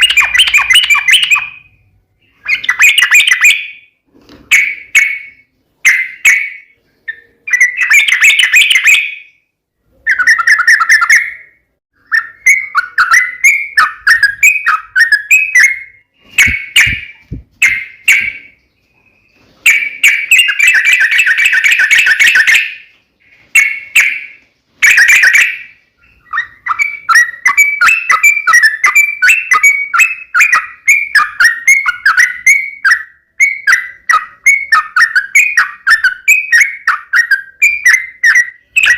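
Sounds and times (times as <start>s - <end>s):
bird singing chattering phrases: 0.0s - 38.9s.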